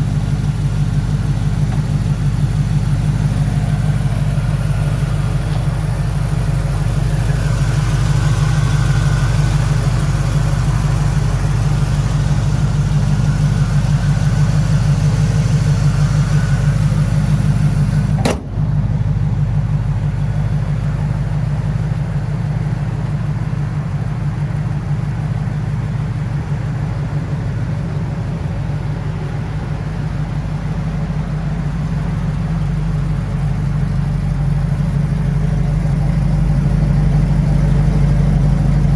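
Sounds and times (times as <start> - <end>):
vee eight engine idling: 0.0 - 38.9
short click: 18.2 - 18.6.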